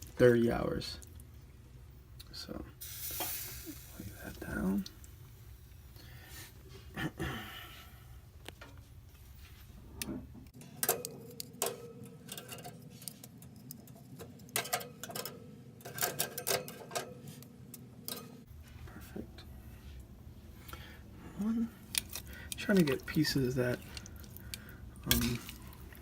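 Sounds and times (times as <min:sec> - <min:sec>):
low background hum: 0:00.0 - 0:26.0
kitchen items clicking and knocking: 0:10.6 - 0:17.3, 0:21.9 - 0:26.0.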